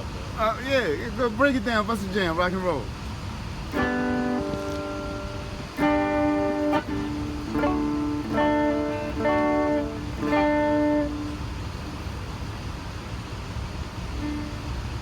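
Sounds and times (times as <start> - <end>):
guitar chords strummed: 3.6 - 12.2, 14.2 - 15.0.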